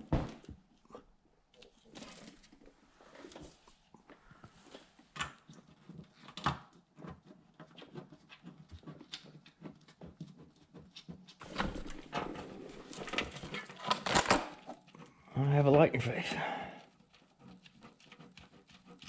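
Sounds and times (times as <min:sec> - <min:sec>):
scraping or rustling noise: 0:07.3 - 0:15.1.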